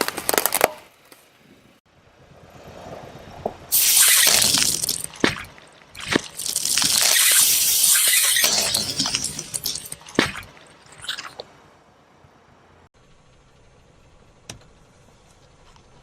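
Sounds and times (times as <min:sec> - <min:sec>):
crackling hissing crunch: 0:03.7 - 0:11.5.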